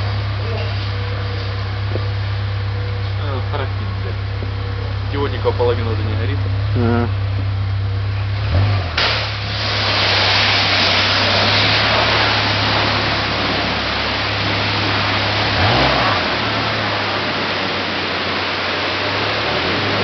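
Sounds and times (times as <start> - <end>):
car engine running: 0.0 - 20.0
loud even hiss: 9.0 - 20.0.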